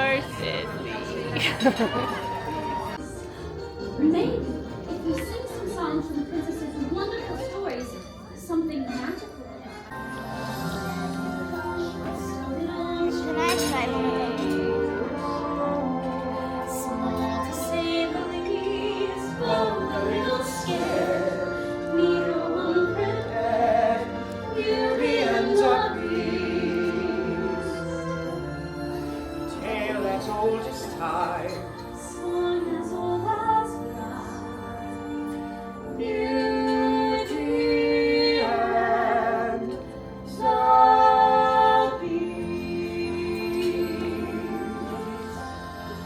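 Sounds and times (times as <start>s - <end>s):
musical accompaniment: 0.0s - 46.0s
orchestral backing track: 0.0s - 46.0s
woman singing operatic style: 11.0s - 28.1s, 29.5s - 45.6s.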